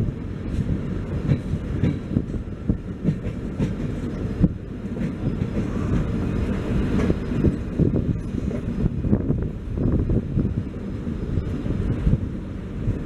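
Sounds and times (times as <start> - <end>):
train coach rumbling: 0.0 - 13.0
wheels knocking on rail joints: 1.2 - 6.2.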